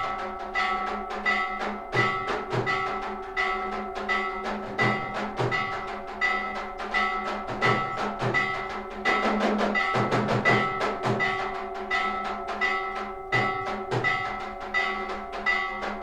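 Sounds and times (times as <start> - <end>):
drum beats: 0.0 - 16.0
temple bells ringing: 0.0 - 16.0.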